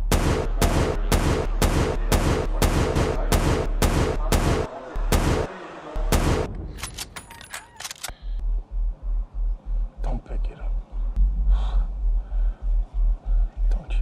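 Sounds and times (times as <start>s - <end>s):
rapid gunfire: 0.0s - 5.5s, 6.1s - 6.5s.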